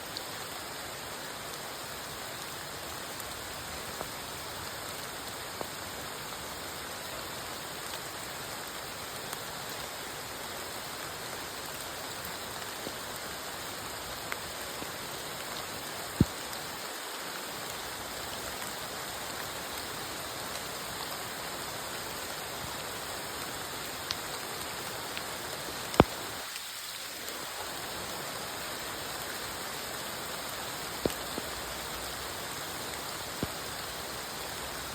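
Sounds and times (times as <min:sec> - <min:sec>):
steady rain falling: 0:00.0 - 0:34.9
raindrop ticks: 0:14.2 - 0:16.8, 0:25.2 - 0:27.6, 0:30.9 - 0:32.2.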